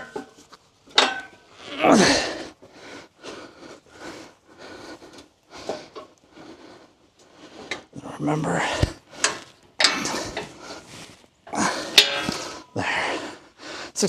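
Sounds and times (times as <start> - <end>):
person grunting: 1.8 - 2.4, 8.0 - 9.0, 9.8 - 10.5, 11.6 - 13.4
short hard breaths: 1.8 - 14.0.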